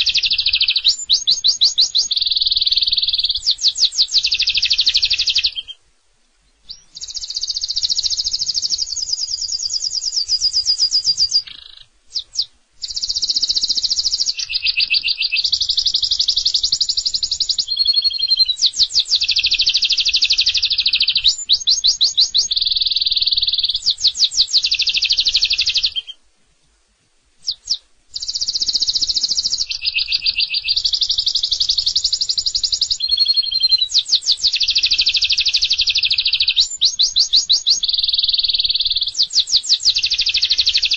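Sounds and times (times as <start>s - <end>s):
canary singing trills: 0.0s - 5.8s, 6.6s - 26.2s, 27.4s - 40.9s.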